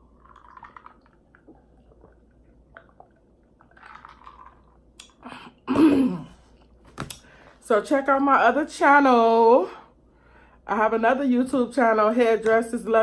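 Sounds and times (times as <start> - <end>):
person chewing: 0.0 - 5.6
person sipping and swallowing: 0.0 - 5.8.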